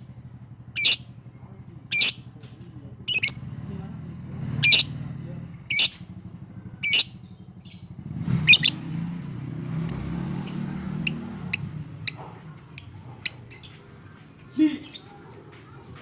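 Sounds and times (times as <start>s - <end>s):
bird chirping: 0.8s - 1.1s, 1.9s - 2.3s, 3.1s - 3.5s, 4.6s - 5.0s, 5.7s - 6.0s, 6.8s - 9.0s, 9.6s - 14.2s.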